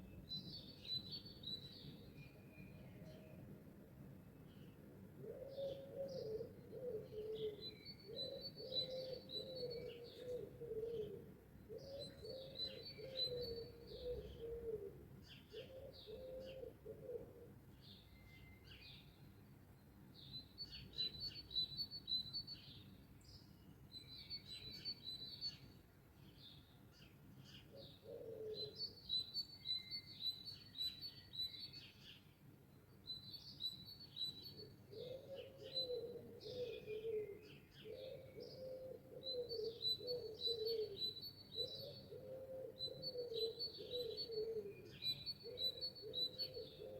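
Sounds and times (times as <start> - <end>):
songbirds chirping: 0.0 - 46.9
dove cooing: 5.2 - 7.6, 8.2 - 17.5, 27.7 - 28.8, 34.9 - 41.0, 41.6 - 46.9.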